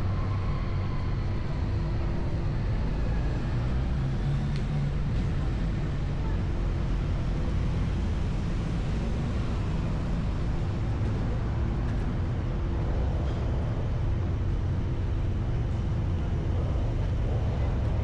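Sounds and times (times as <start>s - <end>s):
low engine rumble: 0.0s - 18.0s
outdoor city ambience: 0.0s - 18.0s.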